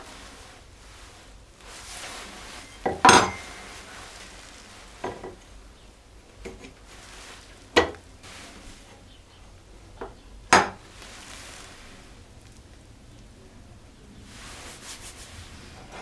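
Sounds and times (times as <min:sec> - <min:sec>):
faint scraping: 0:00.0 - 0:16.0
hard objects clacking: 0:02.8 - 0:03.9
objects knocking: 0:02.8 - 0:03.9, 0:05.0 - 0:05.5, 0:06.4 - 0:06.9, 0:07.7 - 0:09.0, 0:10.0 - 0:11.1.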